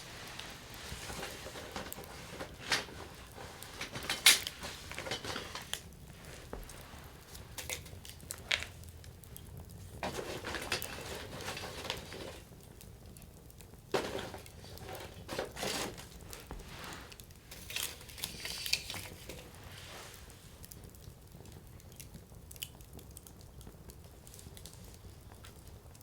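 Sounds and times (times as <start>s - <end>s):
sharp pops of burning wood: 0.0s - 19.6s
campfire crackling: 0.0s - 26.0s.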